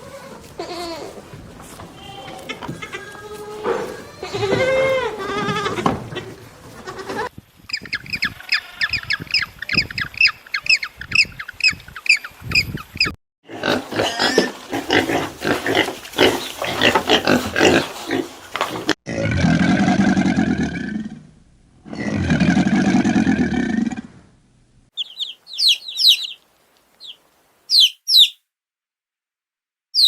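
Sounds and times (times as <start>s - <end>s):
drawn-out pitched animal calls: 25.0s - 26.4s, 27.0s - 28.4s
rapid animal calls: 25.0s - 26.4s, 27.0s - 28.4s
short high chirps: 25.0s - 26.4s, 27.0s - 28.4s.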